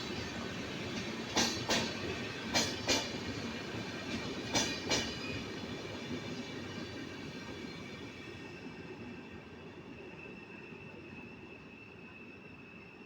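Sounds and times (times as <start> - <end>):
train wheels clacking over rail joint: 0.9 - 3.4, 4.0 - 5.4.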